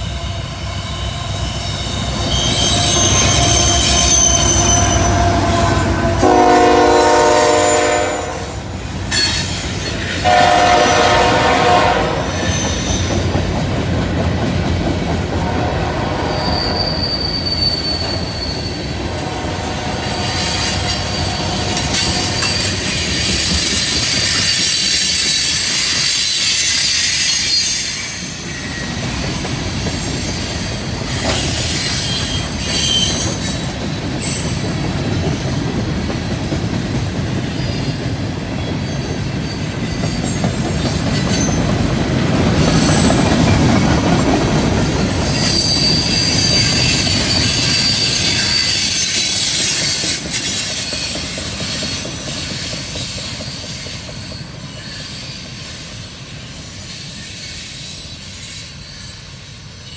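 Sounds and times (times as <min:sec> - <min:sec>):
train wheels rumbling on rails: 0:00.0 - 0:59.9
high wheel squeal: 0:00.7 - 0:08.1, 0:08.8 - 0:10.8, 0:12.2 - 0:13.2, 0:16.0 - 0:34.7, 0:45.1 - 0:59.9.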